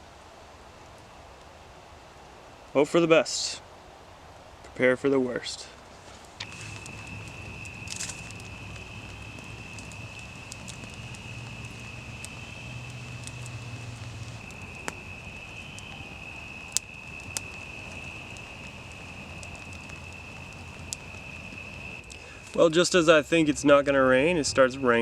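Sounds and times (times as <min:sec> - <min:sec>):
sharp ticks: 0:06.4 - 0:22.2.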